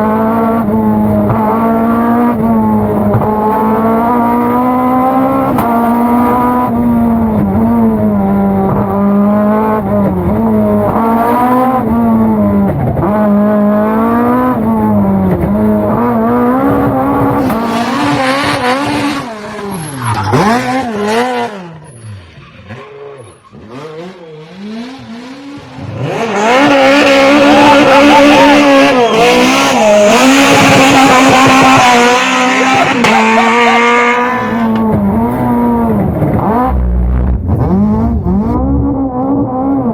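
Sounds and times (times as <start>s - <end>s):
rally car engine driven hard: 0.0s - 39.9s.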